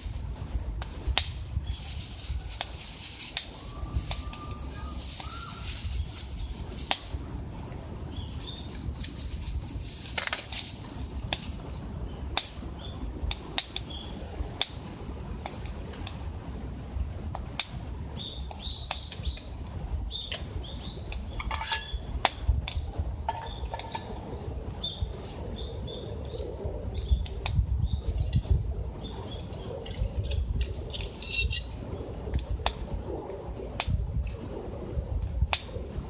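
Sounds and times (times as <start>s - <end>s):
sharp pops from fire: 0.0s - 4.4s, 5.1s - 7.2s, 10.1s - 16.3s, 17.3s - 25.0s, 26.2s - 28.6s, 29.3s - 34.5s, 35.2s - 36.0s
wood fire crackling: 0.0s - 36.0s.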